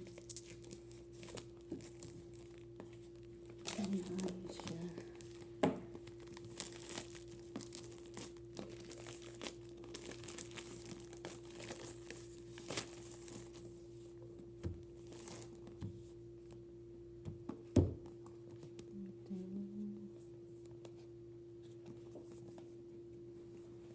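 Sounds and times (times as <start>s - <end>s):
plastic and paper crinkling: 0.0s - 13.9s, 15.0s - 15.8s.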